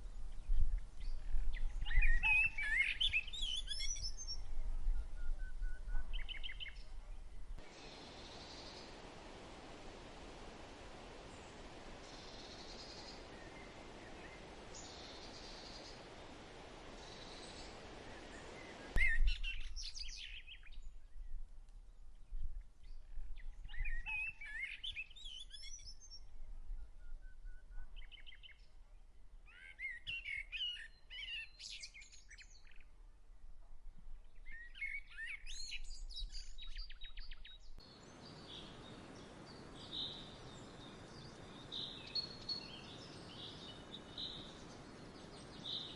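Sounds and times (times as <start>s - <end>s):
small birds chirping: 0.0s - 9.1s, 11.1s - 21.4s, 34.3s - 45.9s
steady outdoor hiss: 0.0s - 26.4s, 34.2s - 45.9s.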